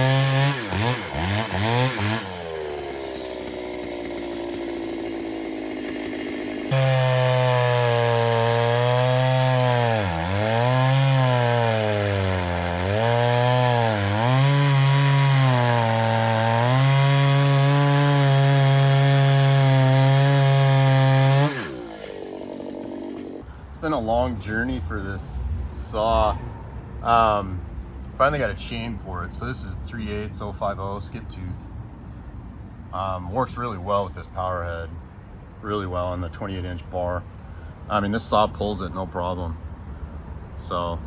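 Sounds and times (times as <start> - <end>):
chainsaw engine revving and cutting: 0.0 - 23.4.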